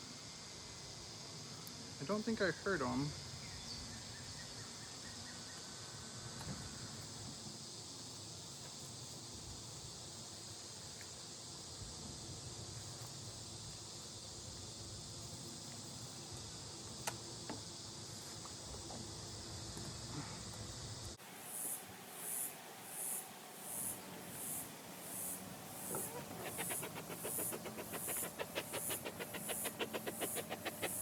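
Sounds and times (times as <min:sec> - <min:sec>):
high insect chirring: 0:21.4 - 0:31.0
bees humming: 0:21.7 - 0:31.0.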